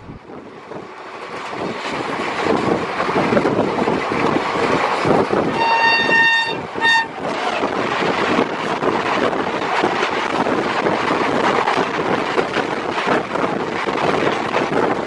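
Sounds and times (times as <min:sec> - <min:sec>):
moving train rumble and wind rush: 0:00.0 - 0:15.0
oncoming train rushing past: 0:00.0 - 0:15.0
locomotive horn: 0:05.5 - 0:07.6.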